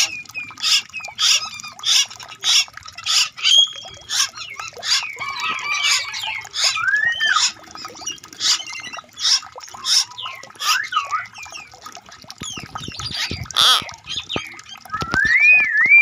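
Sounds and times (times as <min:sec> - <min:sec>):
birds chirping: 0:00.0 - 0:16.0
whistled bird notes: 0:03.4 - 0:07.6, 0:09.8 - 0:11.7, 0:14.0 - 0:16.0.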